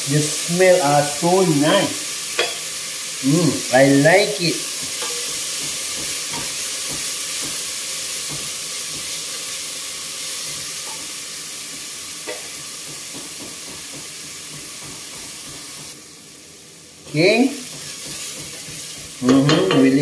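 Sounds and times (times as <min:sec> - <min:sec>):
food sizzling in hot oil: 0:00.0 - 0:20.0
wooden spatula knocking on pot: 0:04.8 - 0:07.6.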